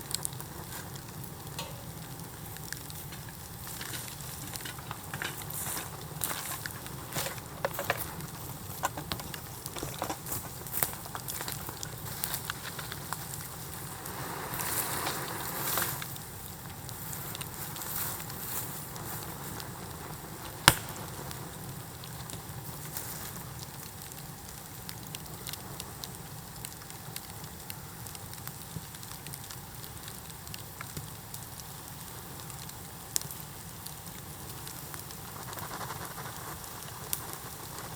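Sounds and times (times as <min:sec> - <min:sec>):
bamboo bonfire crackling: 0:00.0 - 0:37.9
loud pop: 0:20.6 - 0:21.4.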